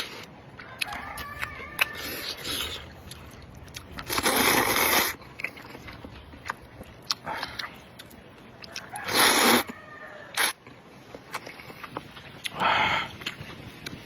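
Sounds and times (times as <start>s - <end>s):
biting and chewing: 0.0s - 14.0s.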